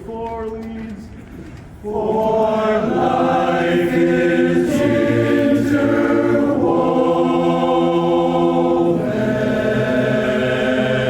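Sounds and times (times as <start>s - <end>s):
barbershop chorus singing: 1.8s - 11.0s.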